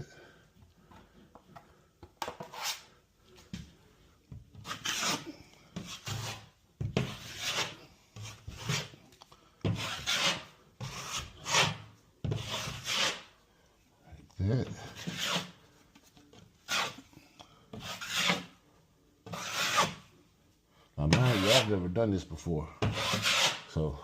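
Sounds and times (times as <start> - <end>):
joint compound scraped on drywall: 2.2 - 2.9, 4.6 - 9.0, 9.6 - 13.3, 14.7 - 15.6, 16.6 - 17.1, 17.7 - 18.6, 19.2 - 20.1, 21.1 - 21.8, 22.8 - 23.8.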